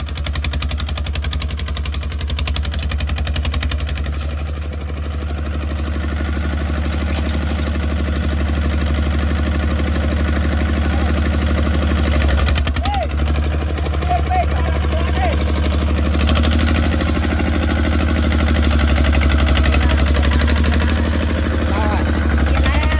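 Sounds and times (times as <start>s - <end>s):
diesel tractor engine chugging: 0.0s - 22.9s.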